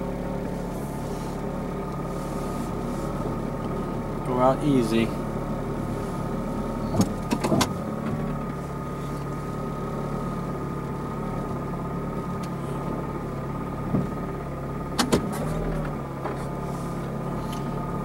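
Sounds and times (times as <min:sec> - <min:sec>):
car engine running inside cabin: 0:00.0 - 0:18.0
sharp clicks or knocks: 0:07.0 - 0:08.2.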